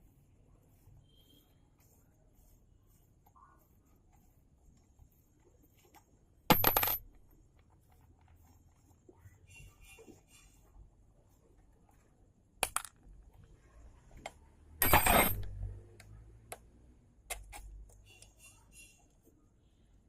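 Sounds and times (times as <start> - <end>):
metal parts clattering: 14.8 - 15.6
metallic clicks and clinks: 14.8 - 15.7.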